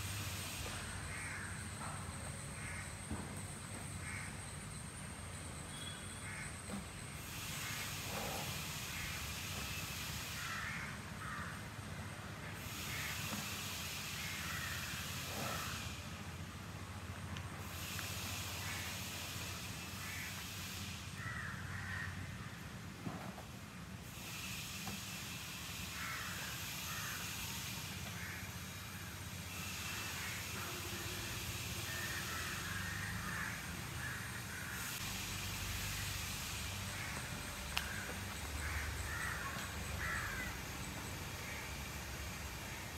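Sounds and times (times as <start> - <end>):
high outdoor hiss: 0.0 - 42.9
bird caws: 0.7 - 3.0, 4.0 - 4.5, 5.7 - 9.4, 10.2 - 11.8, 12.6 - 15.9, 18.5 - 19.1, 19.9 - 20.5, 21.1 - 22.7, 25.8 - 35.0, 36.9 - 41.9
birds calling harshly: 18.5 - 22.6, 31.8 - 35.0, 35.8 - 42.9.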